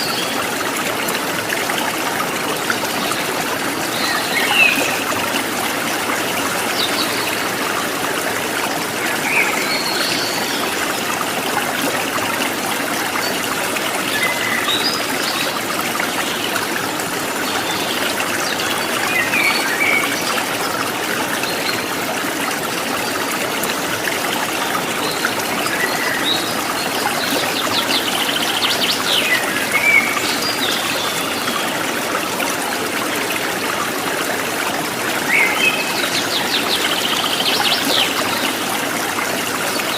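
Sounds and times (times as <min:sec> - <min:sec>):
stream trickling and splashing: 0:00.0 - 0:39.9.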